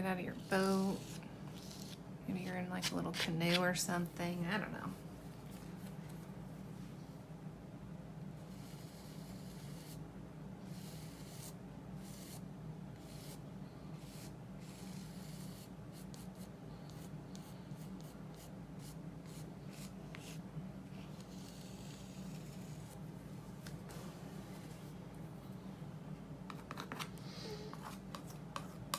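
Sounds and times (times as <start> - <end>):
steady low hum: 0.0 - 28.9
paintbrush scratching on paper: 8.5 - 10.0.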